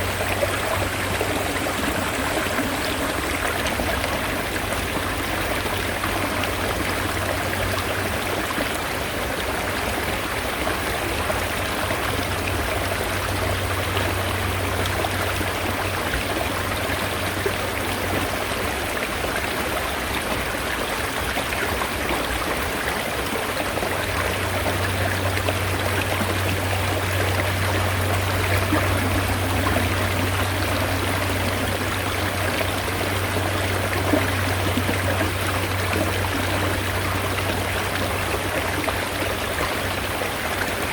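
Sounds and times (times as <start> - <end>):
mountain stream flowing: 0.0 - 40.9
low steady rumble: 23.8 - 40.1.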